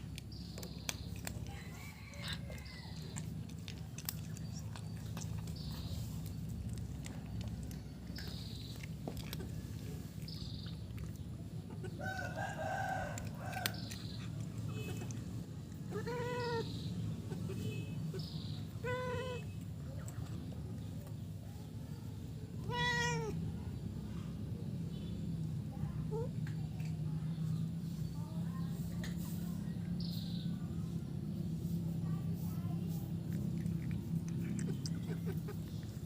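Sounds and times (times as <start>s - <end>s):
cat meowing: 15.9s - 16.8s, 22.6s - 23.4s.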